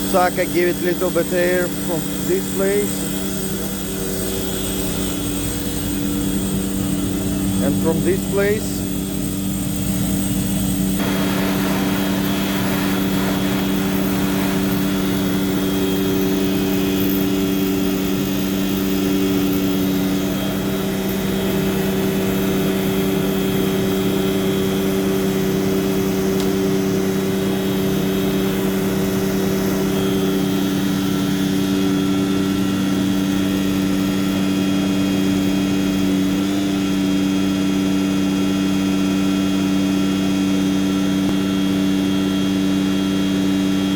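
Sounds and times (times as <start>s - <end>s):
truck engine and pump drone: 0.0s - 43.9s
rushing noise: 11.0s - 15.9s.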